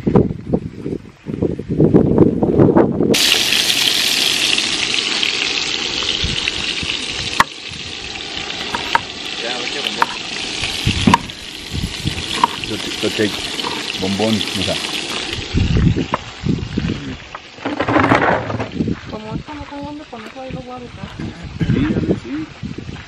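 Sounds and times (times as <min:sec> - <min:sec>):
wind buffeting the microphone: 0:00.0 - 0:03.3, 0:06.0 - 0:08.2, 0:10.5 - 0:23.0
food frying in a pan: 0:03.1 - 0:17.6.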